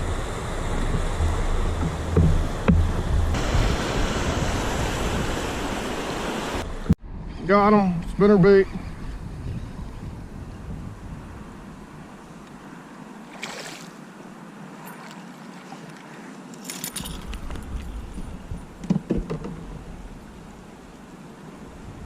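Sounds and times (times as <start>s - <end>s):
wind rumble on microphone: 0.0s - 12.8s, 17.0s - 21.0s, 21.6s - 22.0s
knocks and rattles in a canoe: 0.6s - 3.8s, 16.8s - 19.9s
hollow knock against hull: 0.9s - 3.4s.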